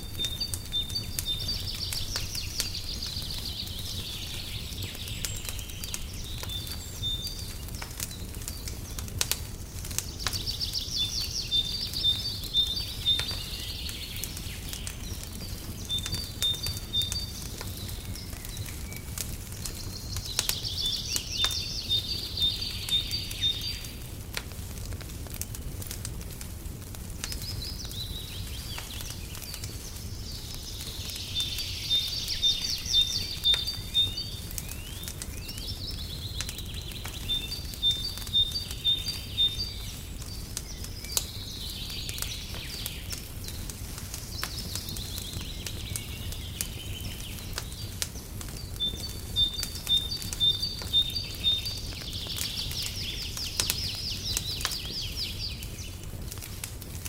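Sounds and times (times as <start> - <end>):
birds singing: 0.0 - 24.8, 27.0 - 57.0
wood fire crackling: 0.0 - 57.0.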